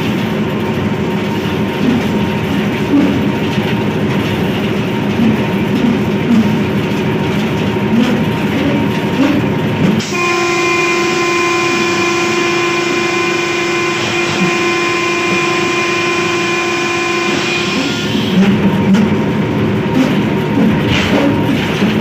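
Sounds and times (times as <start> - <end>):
diesel locomotive running: 0.0 - 22.0
locomotive horn blast: 10.0 - 19.0.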